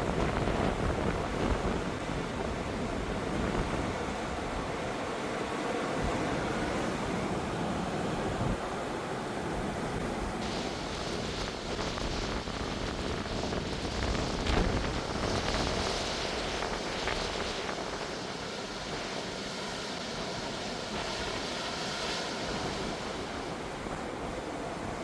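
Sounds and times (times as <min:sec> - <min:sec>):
wind buffeting microphone: 0:00.0 - 0:19.4
ocean surf breaking: 0:00.0 - 0:25.0.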